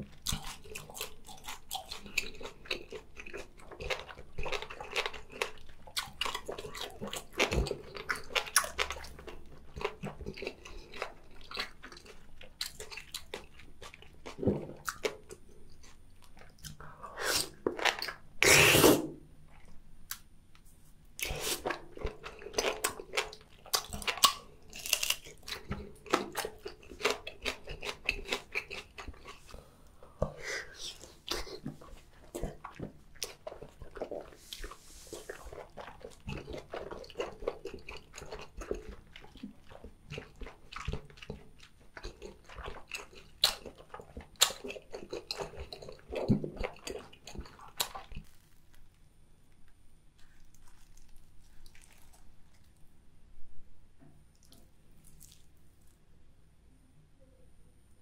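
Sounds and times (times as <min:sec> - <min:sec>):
chewing and biting: 0:00.0 - 0:18.2, 0:21.2 - 0:29.7, 0:30.8 - 0:49.0, 0:50.2 - 0:52.8.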